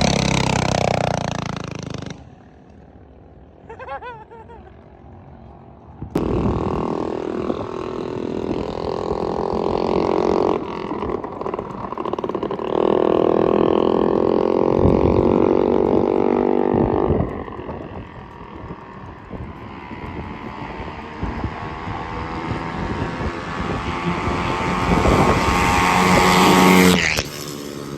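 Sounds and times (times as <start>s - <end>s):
minibike engine running: 6.2s - 27.9s.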